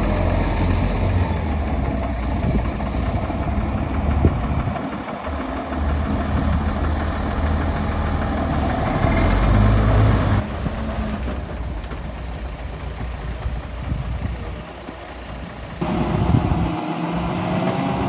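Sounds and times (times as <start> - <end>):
heavy machinery diesel engine: 0.0 - 18.0.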